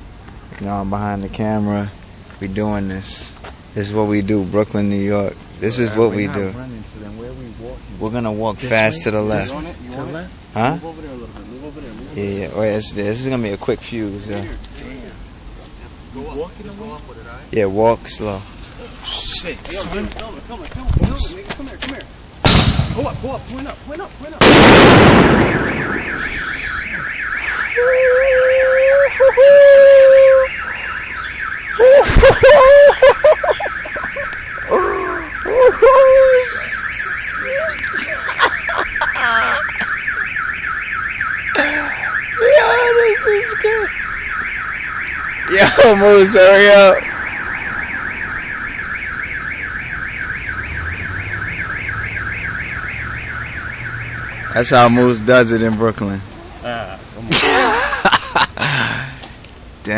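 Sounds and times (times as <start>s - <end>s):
firework explosion echo: 22.5s - 23.5s, 24.4s - 27.0s
car alarm wailing: 24.4s - 55.6s
voices shouting: 25.3s - 40.4s, 41.6s - 44.2s.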